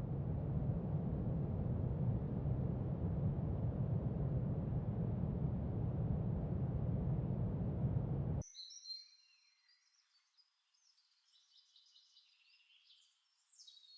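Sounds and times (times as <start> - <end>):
low rumbling noise: 0.0 - 8.4
faint bird chirps: 8.4 - 13.9.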